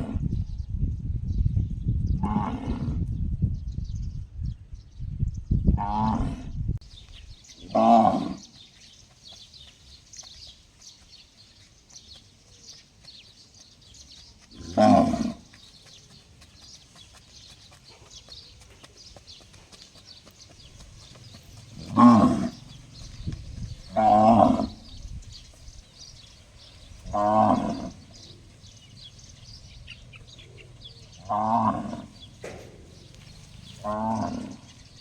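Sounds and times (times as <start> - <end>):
cow calling: 21.8 - 23.0, 23.9 - 24.9.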